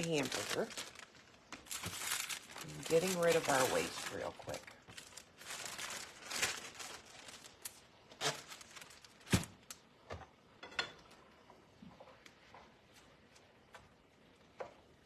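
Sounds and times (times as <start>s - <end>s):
rustling: 0.0s - 9.8s
kitchen knocks and clatters: 10.0s - 11.3s.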